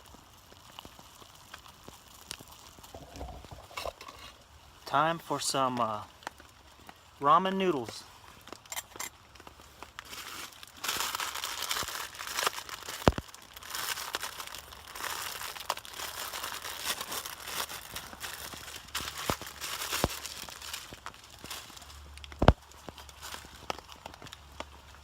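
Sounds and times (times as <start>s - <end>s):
plastic wrapper crinkling: 0.0s - 4.4s, 5.8s - 25.0s.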